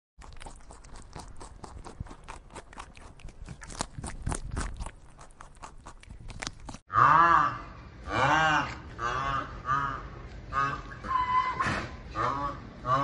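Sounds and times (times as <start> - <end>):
animal chewing bamboo leaves: 0.2 - 6.9.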